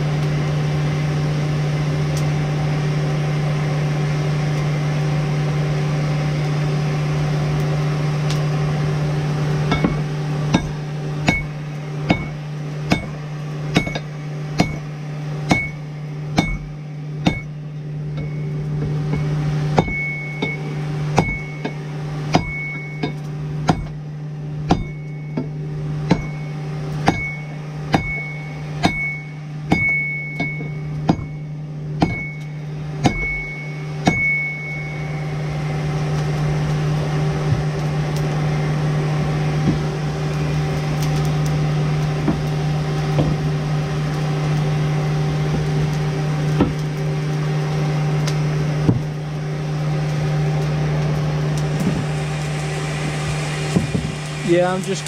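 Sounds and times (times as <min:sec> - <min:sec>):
steady low hum: 0:00.0 - 0:55.0
hammer on hot steel: 0:09.7 - 0:24.0, 0:24.6 - 0:35.0, 0:46.5 - 0:46.8.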